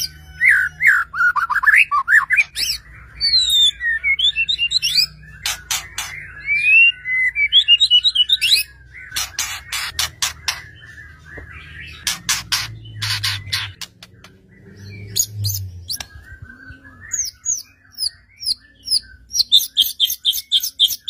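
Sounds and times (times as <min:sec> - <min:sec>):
bird singing whistled song: 0:00.0 - 0:21.0
harsh rasping bird notes: 0:08.2 - 0:16.2.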